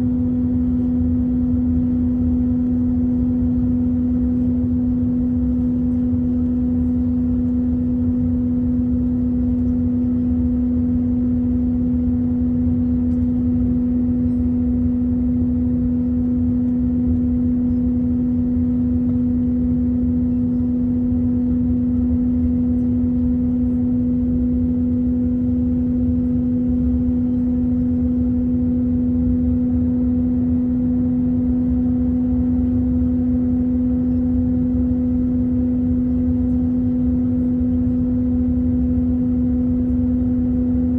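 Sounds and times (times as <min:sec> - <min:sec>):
aircraft cabin engine drone: 0:00.0 - 0:40.9.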